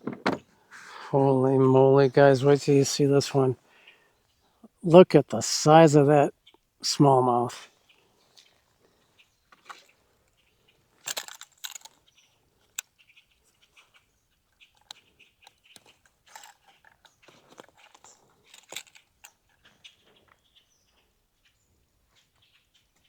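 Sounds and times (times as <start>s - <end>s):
clicks and taps of gear: 11.0s - 12.9s, 14.6s - 20.4s.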